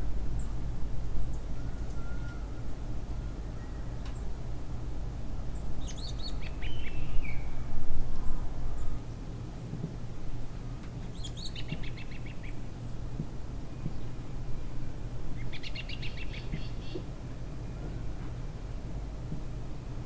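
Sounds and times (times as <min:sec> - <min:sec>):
low outdoor rumble: 0:00.0 - 0:20.0
small songbird singing: 0:05.6 - 0:07.6, 0:11.1 - 0:12.6, 0:15.4 - 0:17.0.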